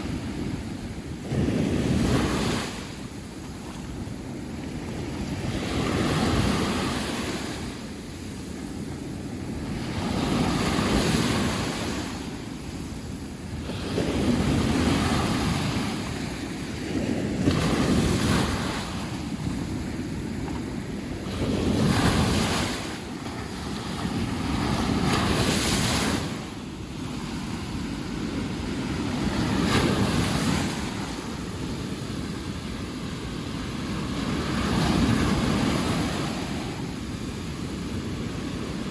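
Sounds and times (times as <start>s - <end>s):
sea waves breaking on beach: 0.0s - 38.9s
wind rumbling on microphone: 0.0s - 38.9s.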